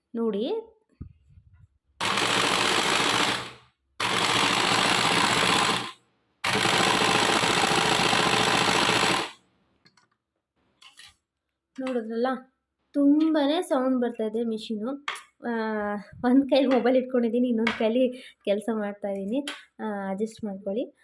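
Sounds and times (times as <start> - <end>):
noisy sewing machine stitching: 2.0 - 9.4.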